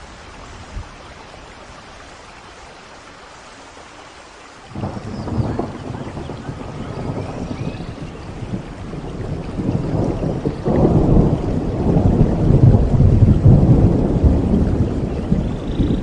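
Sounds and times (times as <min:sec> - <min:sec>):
rain falling: 0:00.0 - 0:16.0
thunder rumbling: 0:04.7 - 0:16.0.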